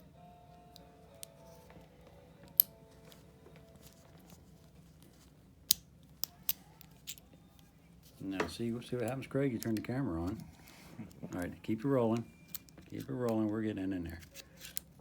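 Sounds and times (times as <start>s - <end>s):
faint music: 0.0s - 15.0s.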